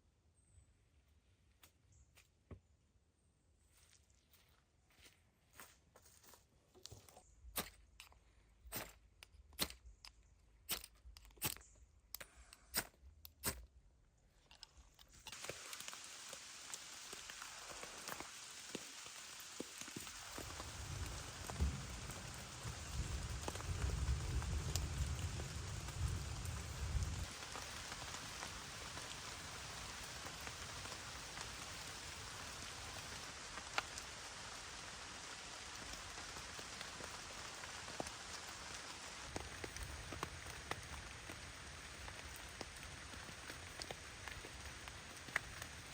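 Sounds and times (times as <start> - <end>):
footsteps crunching on forest floor: 3.6 - 7.9
steady rain: 15.2 - 45.9.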